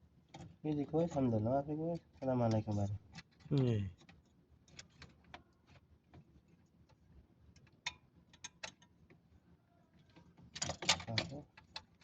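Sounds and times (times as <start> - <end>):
small parts and tools clicking: 1.9 - 9.2, 9.9 - 12.0.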